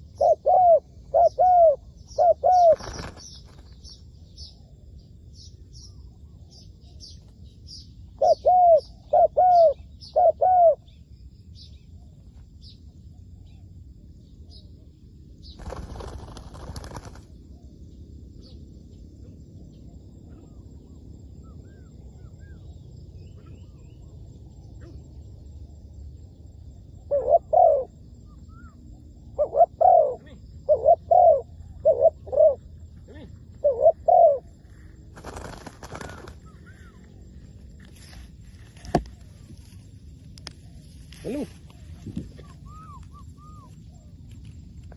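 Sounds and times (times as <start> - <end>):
dove cooing: 0.0 - 3.2, 8.2 - 10.8, 27.0 - 28.7, 29.4 - 34.6, 40.7 - 44.0
rustle: 34.6 - 44.9.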